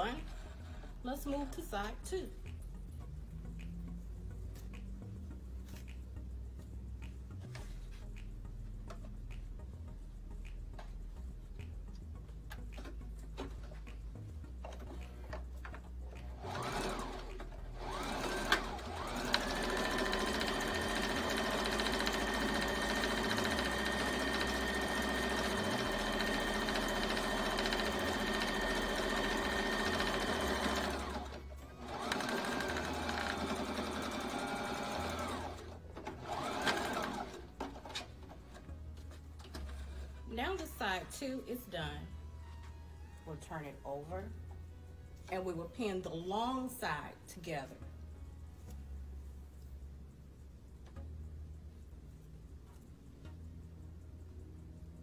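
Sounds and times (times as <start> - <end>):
sewing machine stitching: 16.1 - 38.1.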